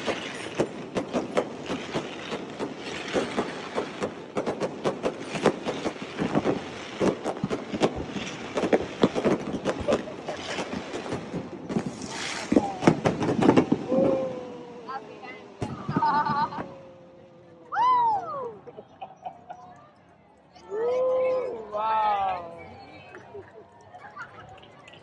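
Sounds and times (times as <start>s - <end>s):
fireworks bangs and crackles: 0.0s - 17.3s.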